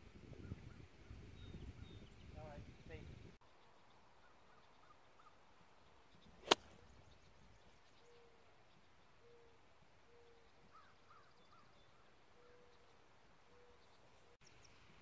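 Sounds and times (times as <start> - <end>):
low hooting bird call: 9.2 - 12.9.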